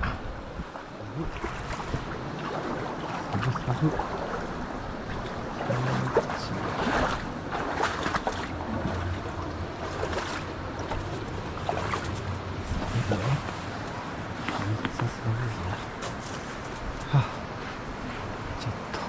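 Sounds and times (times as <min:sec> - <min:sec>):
stream water rushing: 0:00.0 - 0:19.0
wind on microphone: 0:00.0 - 0:19.0
small knocks and scrapes: 0:16.0 - 0:17.0.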